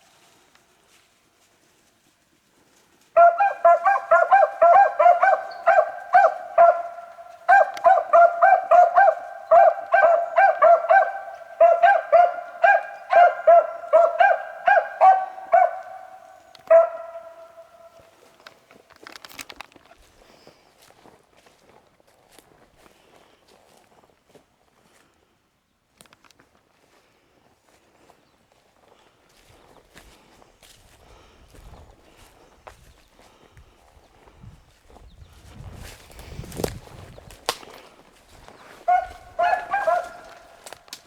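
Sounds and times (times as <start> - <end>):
hounds baying: 3.2 - 18.6, 37.6 - 41.0.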